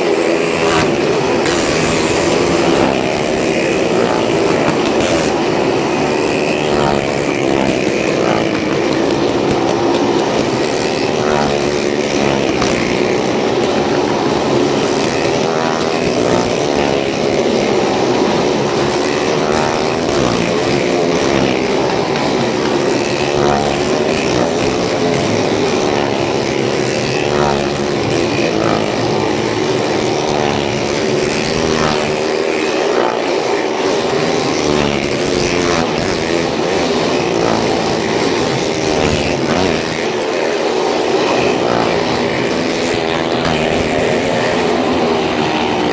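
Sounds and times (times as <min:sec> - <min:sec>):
motorcycle engines running hard: 0:00.0 - 0:45.9.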